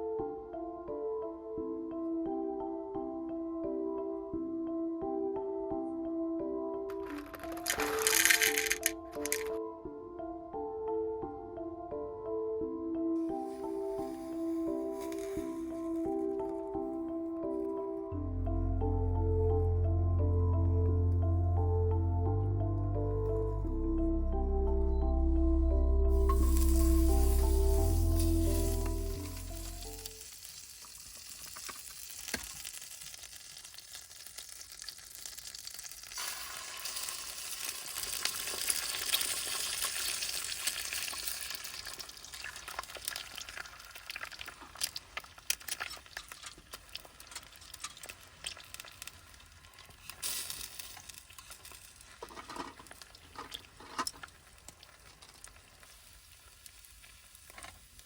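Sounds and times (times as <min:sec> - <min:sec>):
food sizzling in a frying pan: 0:13.3 - 0:16.0, 0:26.3 - 0:52.3, 0:54.8 - 0:58.0.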